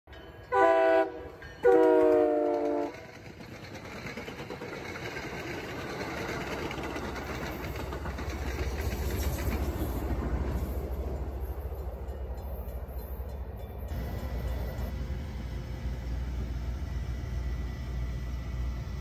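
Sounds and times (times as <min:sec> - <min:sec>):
train horn chord: 0:00.4 - 0:03.0
wheels clattering over rail joints: 0:01.3 - 0:16.8.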